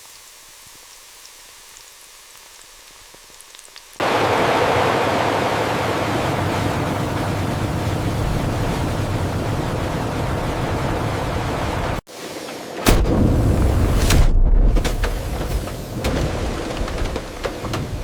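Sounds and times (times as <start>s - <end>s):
faint hiss: 0.0s - 4.2s
loud steady rushing noise: 4.0s - 12.0s.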